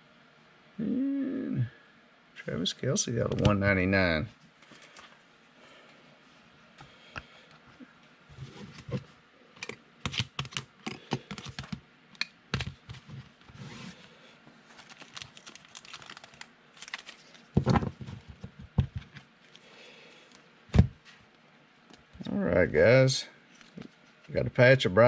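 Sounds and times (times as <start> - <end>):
handling cards in plastic sleeves: 14.6 - 19.7.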